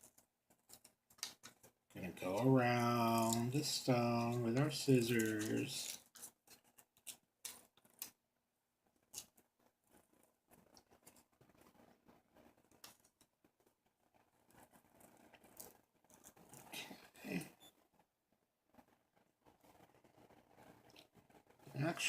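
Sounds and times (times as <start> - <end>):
scissors snipping paper: 2.3 - 8.2.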